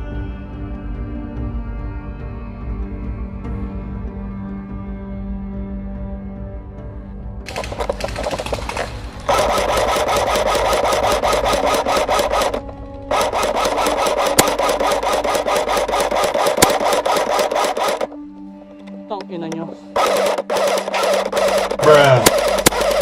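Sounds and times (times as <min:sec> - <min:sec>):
airsoft gun firing full auto: 0:07.5 - 0:18.2, 0:20.0 - 0:23.0.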